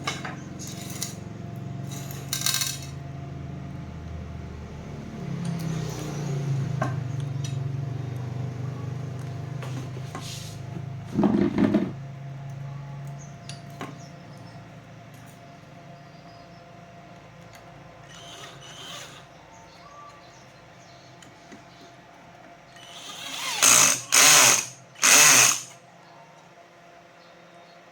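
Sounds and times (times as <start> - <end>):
tools clattering: 1.9 - 3.0.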